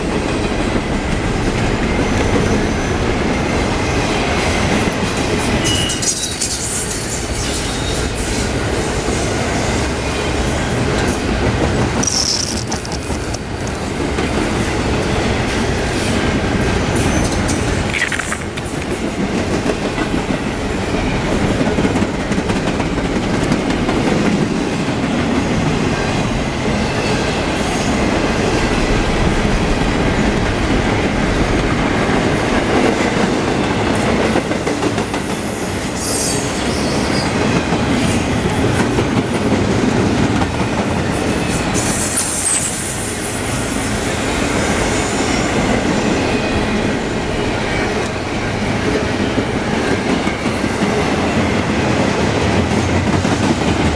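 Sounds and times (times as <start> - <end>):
freight train wheels rumbling: 0.0 - 53.9
high-pitched wheel squeals: 41.7 - 43.0.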